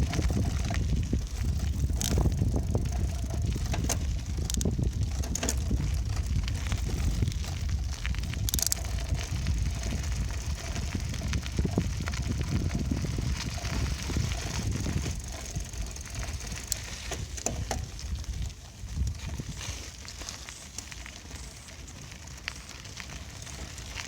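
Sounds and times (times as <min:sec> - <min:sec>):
sharp clicks and rattles: 0:00.0 - 0:18.4
wind buffeting microphone: 0:00.0 - 0:20.1
bicycle tyre and frame noise: 0:00.0 - 0:24.0.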